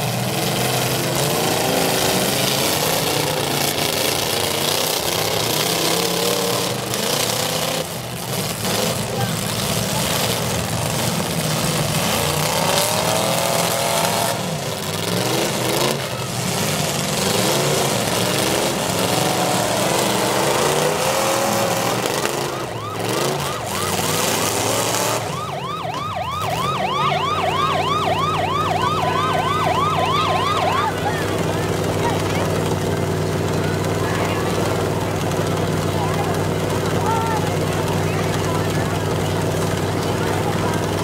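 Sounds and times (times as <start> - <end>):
car engines revving: 0.0 - 41.0
siren yelping: 18.3 - 32.3.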